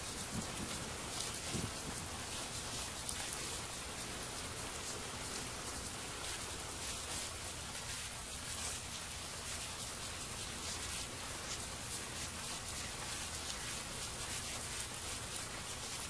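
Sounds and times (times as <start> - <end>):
steady rain pattering: 0.0 - 16.0.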